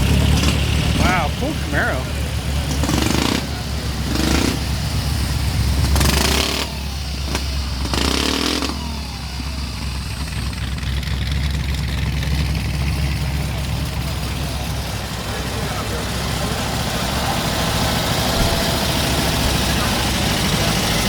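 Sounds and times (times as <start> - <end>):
engine revving bursts: 0.0 - 10.3
car engine rumbling: 0.0 - 21.0.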